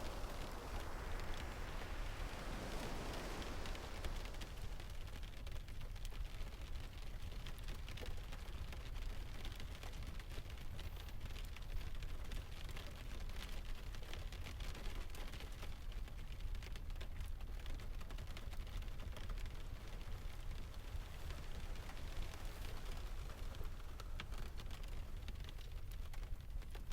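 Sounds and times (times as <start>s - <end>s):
distant surf rumbling: 0.0s - 5.8s, 18.8s - 26.0s
rain hissing: 0.0s - 5.8s, 18.8s - 26.1s.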